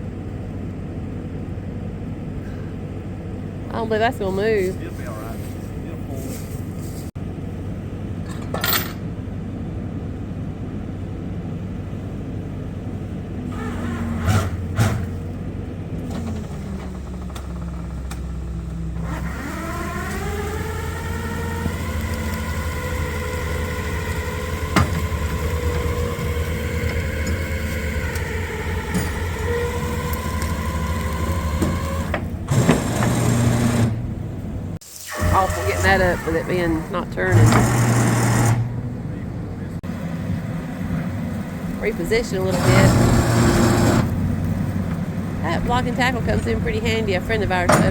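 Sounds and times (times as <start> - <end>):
vehicle engine revving with whine: 13.3 - 47.9.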